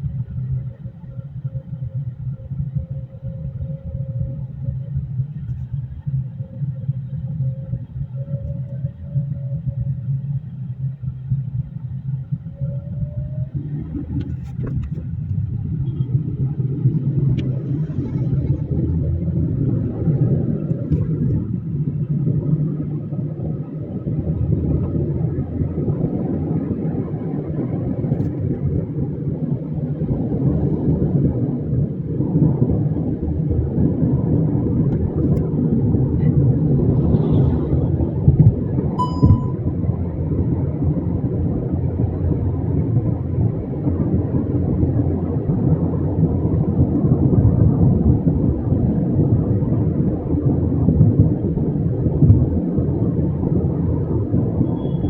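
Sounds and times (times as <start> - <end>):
moving vehicle rumble: 0.0 - 55.0
short tone: 39.0 - 39.7.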